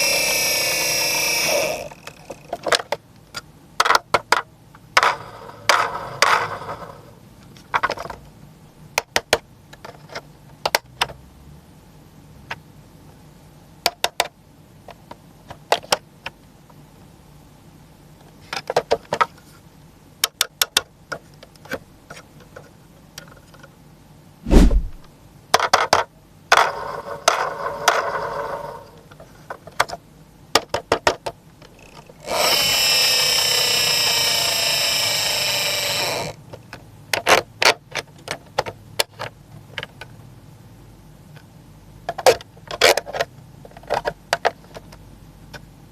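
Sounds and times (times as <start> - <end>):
toy electronic sound effect: 0.0 - 2.5
small clicks and taps of toy parts: 2.0 - 5.1, 7.4 - 8.2, 9.0 - 11.2, 13.8 - 16.8, 18.2 - 19.4, 20.2 - 23.7, 25.5 - 26.7, 29.1 - 32.1, 36.5 - 40.2, 42.1 - 45.7
heavy thump: 24.5 - 25.0.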